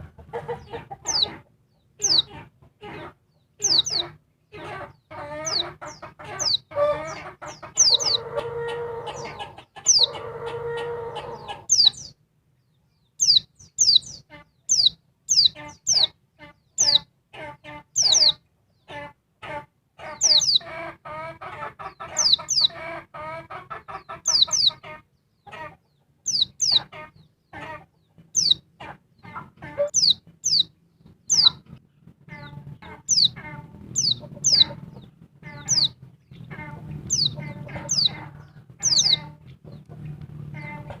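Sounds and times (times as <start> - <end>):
bird rapid chattering calls: 0.4 - 1.4, 2.0 - 2.4, 3.6 - 8.2, 9.1 - 10.2, 11.3 - 12.1, 13.2 - 17.0, 18.0 - 18.4, 20.1 - 20.7, 22.0 - 22.8, 24.0 - 24.9, 26.3 - 27.7, 28.4 - 28.6, 29.2 - 31.6, 32.3 - 39.9
buzzy pulsing bird calls: 0.6 - 1.4, 2.0 - 2.4, 3.0 - 10.2, 11.0 - 12.2, 13.2 - 17.1, 18.0 - 18.4, 20.1 - 20.7, 24.2 - 24.8, 26.2 - 27.2, 28.4 - 28.6, 29.8 - 31.7, 32.3 - 41.0
bird sharp high chirps: 1.0 - 1.3, 2.0 - 2.3, 3.6 - 4.2, 5.4 - 8.2, 9.1 - 10.2, 11.3 - 12.2, 13.1 - 17.1, 17.9 - 18.4, 20.2 - 20.7, 22.1 - 22.8, 24.2 - 24.8, 26.2 - 26.9, 28.3 - 28.6, 29.8 - 31.6, 32.4 - 38.2, 38.8 - 39.4.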